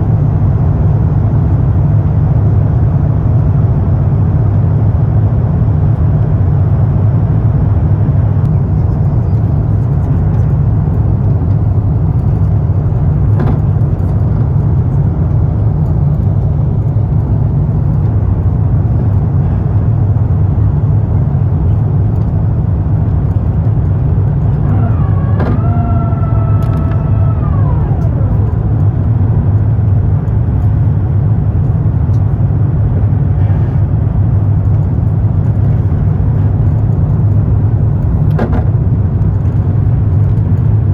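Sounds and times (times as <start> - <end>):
aircraft cabin engine rumble: 0.0 - 40.9
gliding pitched tone: 24.6 - 29.8.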